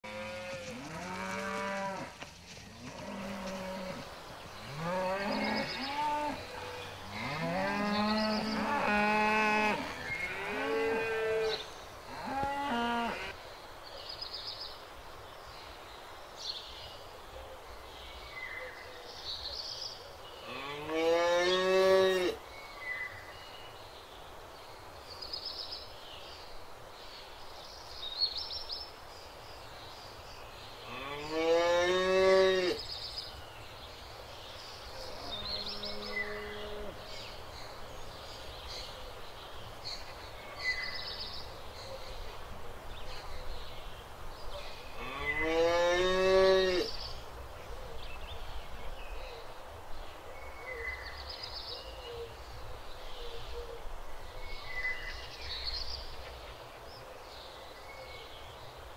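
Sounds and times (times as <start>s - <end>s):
cows mooing: 4.6s - 11.6s.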